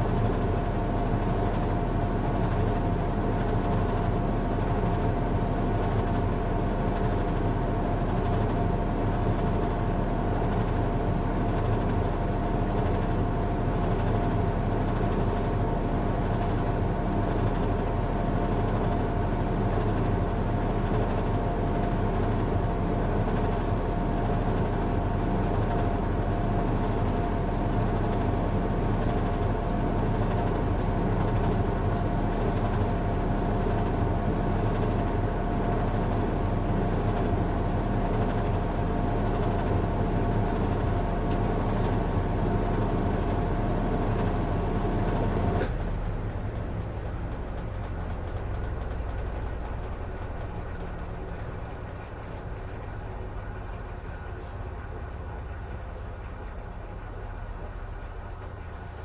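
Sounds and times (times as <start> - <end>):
washing machine running: 1.2 - 59.0.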